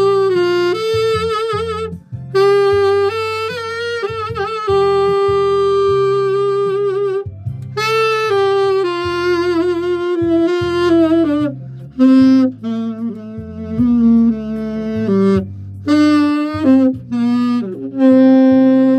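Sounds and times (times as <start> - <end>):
backing track with bass line: 0.0 - 18.9
solo wind instrument melody: 0.0 - 18.9.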